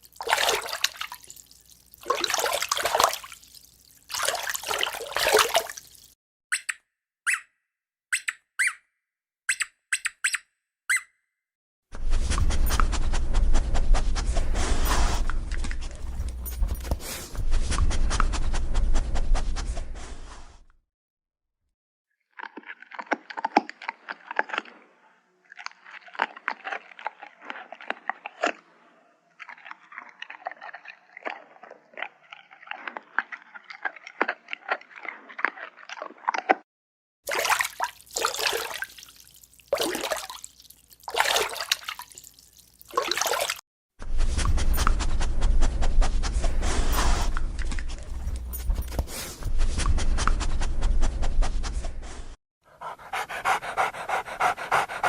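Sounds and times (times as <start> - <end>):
dog breathy puffs: 12.0 - 20.6, 44.0 - 55.0
dog panting heavily: 48.1 - 55.0.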